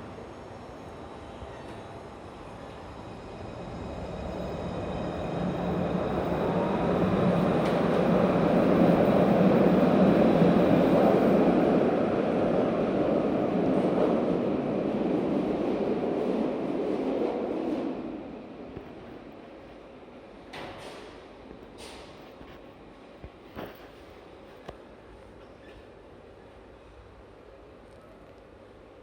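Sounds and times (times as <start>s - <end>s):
tram rumbling on rails: 0.0s - 28.2s.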